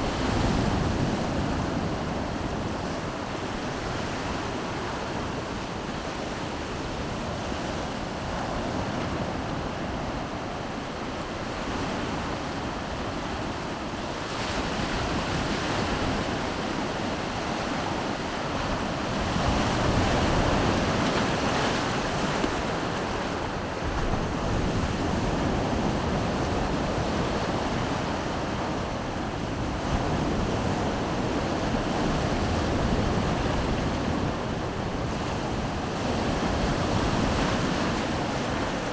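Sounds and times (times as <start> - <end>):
wind rumbling on microphone: 0.0 - 38.9
surf washing onto shore: 12.1 - 38.9.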